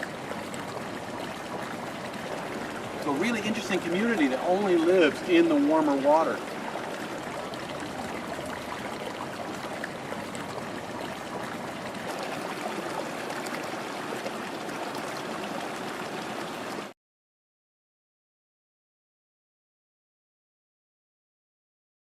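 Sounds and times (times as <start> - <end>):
river water flowing over rocks: 0.0 - 16.9.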